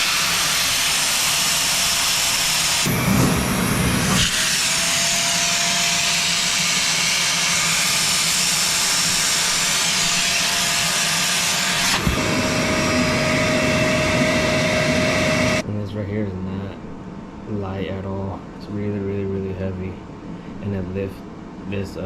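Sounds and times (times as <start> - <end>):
wet dry vacuum running: 0.0 - 15.6
vacuum click: 11.8 - 15.6.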